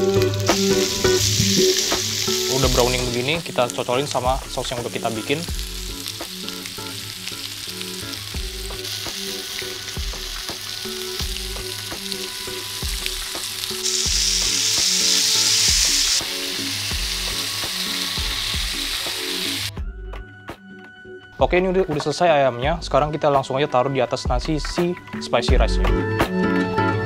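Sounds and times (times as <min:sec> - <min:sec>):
chicken sizzling in grill pan: 0:00.0 - 0:19.7.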